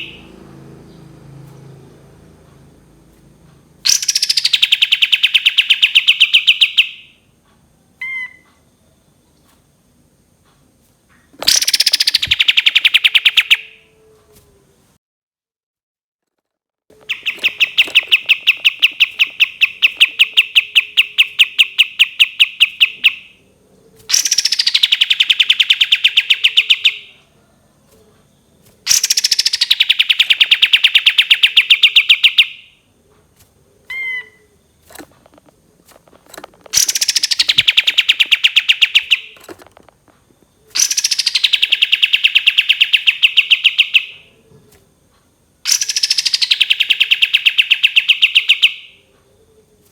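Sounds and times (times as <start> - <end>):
bird singing rapid trills: 0.0 - 2.1, 3.8 - 7.2, 11.4 - 13.8, 17.0 - 27.2, 28.9 - 32.8, 36.3 - 39.6, 40.6 - 44.3, 45.6 - 49.0.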